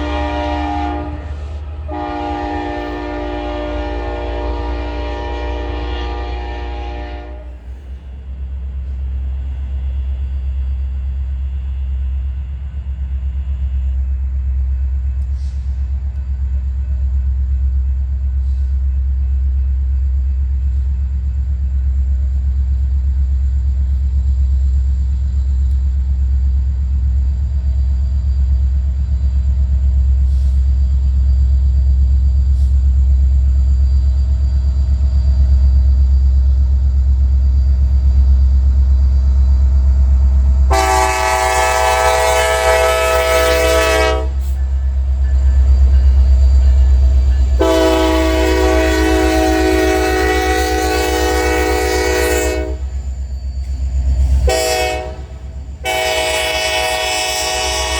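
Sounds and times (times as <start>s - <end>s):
train horn chord: 0.0s - 7.8s, 40.7s - 46.2s, 46.8s - 53.0s, 54.4s - 57.9s
passing train rumble: 0.0s - 57.9s.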